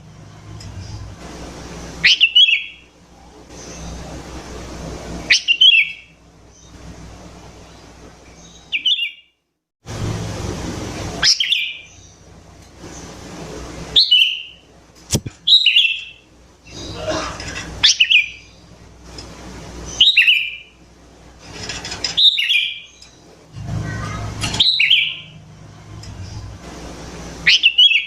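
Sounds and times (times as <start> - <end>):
sharp click: 15.1 - 15.4.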